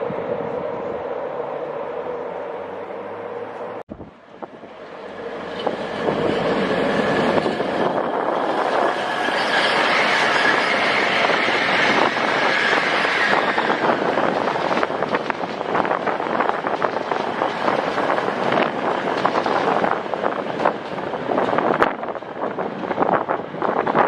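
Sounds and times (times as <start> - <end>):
train passing close by: 0.0 - 24.0
high wheel squeal: 5.1 - 14.8.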